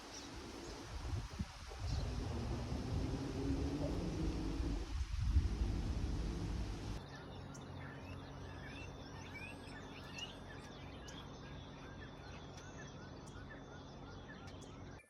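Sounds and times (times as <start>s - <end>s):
loud rush of noise: 0.0s - 7.0s
faint low hum: 0.0s - 9.3s
birds chirping: 0.0s - 14.8s.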